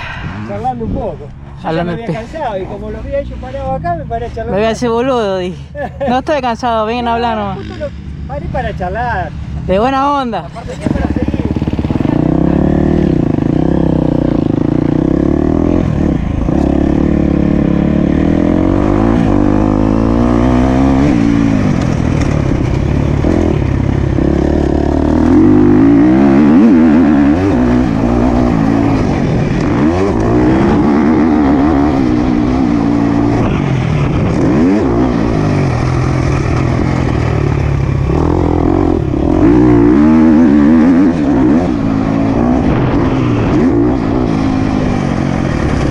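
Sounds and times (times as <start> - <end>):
motocross bike engine revving: 10.5 - 45.9.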